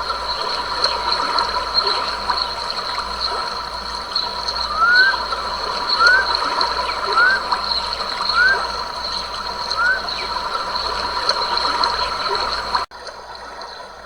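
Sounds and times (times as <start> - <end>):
steady high-pitched tones: 0.0 - 12.9
stream water trickling: 0.0 - 14.0
animal whistled calls: 4.6 - 11.9.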